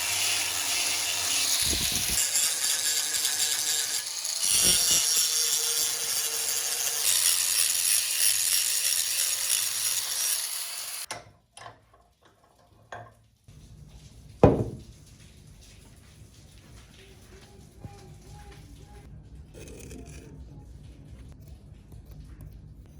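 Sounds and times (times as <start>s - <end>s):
hand tool scraping wood: 0.0s - 11.1s.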